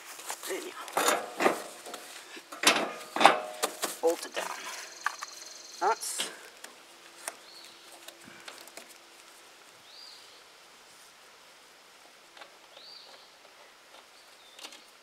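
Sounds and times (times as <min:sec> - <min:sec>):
bird chirping: 0:04.2 - 0:06.4, 0:07.3 - 0:08.1, 0:09.8 - 0:10.5, 0:12.7 - 0:13.5, 0:14.1 - 0:15.0.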